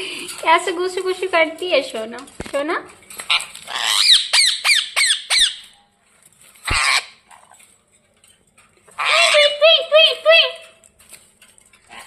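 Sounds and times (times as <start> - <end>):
parrot squawking: 3.3 - 5.7, 6.7 - 7.6, 8.9 - 10.6.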